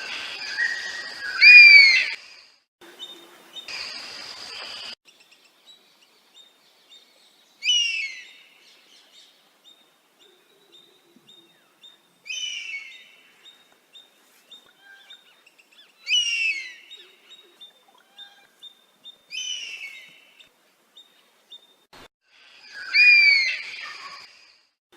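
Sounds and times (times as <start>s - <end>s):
bird whistled calls: 22.6s - 24.4s.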